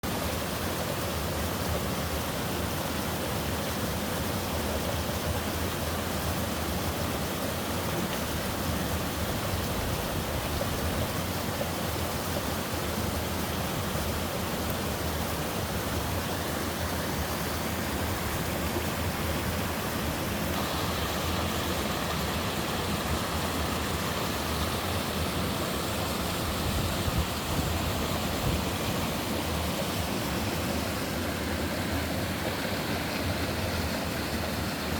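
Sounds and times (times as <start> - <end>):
stream water rushing over rocks: 0.0 - 34.9.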